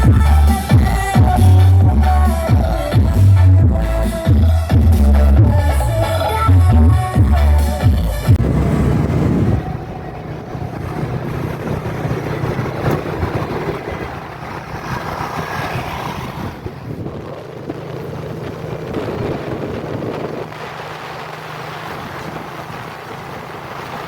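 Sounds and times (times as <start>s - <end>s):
ship engines humming: 0.0s - 24.0s
wind blowing across microphone: 8.2s - 24.0s.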